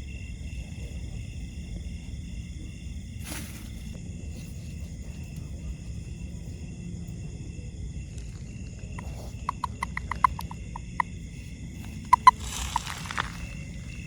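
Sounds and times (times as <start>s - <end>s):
high insect-like whine: 0.0s - 14.0s
frog calls: 9.0s - 14.0s.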